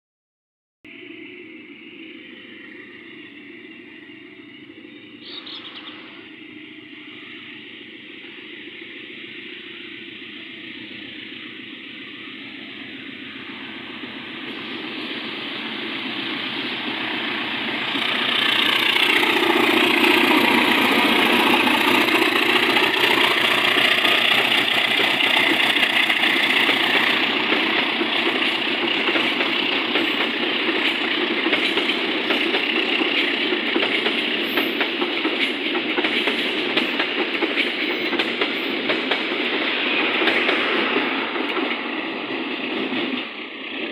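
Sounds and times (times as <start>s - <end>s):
diesel train engine: 0.9s - 43.9s
train wheels clicking on rail joints: 15.1s - 43.9s.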